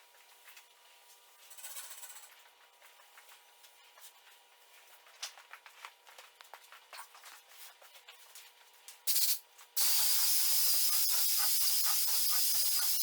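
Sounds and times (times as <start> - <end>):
short airy hiss: 9.1 - 13.0.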